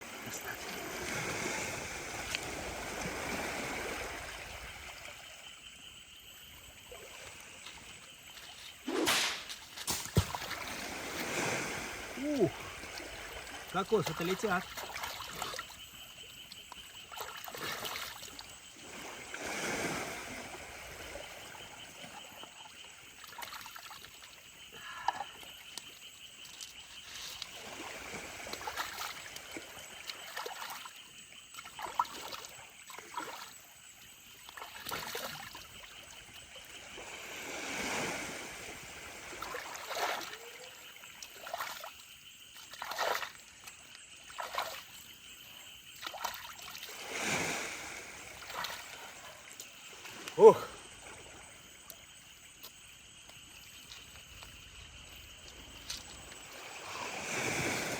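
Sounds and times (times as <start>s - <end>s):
stream water trickling: 0.0s - 57.9s
water splashing: 6.8s - 25.6s, 26.5s - 33.6s, 34.3s - 52.0s
sharp knocks: 9.0s - 10.4s.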